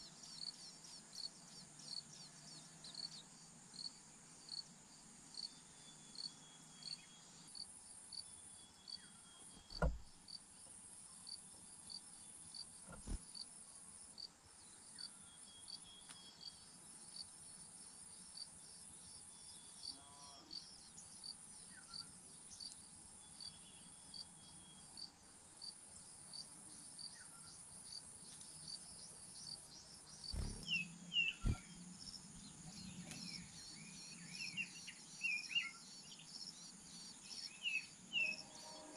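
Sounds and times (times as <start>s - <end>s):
insect chirping: 0.2s - 38.8s
insects buzzing: 0.2s - 38.9s
sharp knocks: 9.7s - 10.1s
bird chirps: 29.4s - 38.9s.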